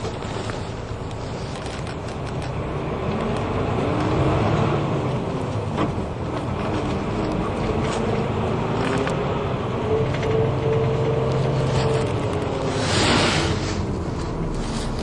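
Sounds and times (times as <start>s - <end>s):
bus engine running: 0.0s - 15.0s
bodywork clicks and rattles: 5.4s - 9.2s.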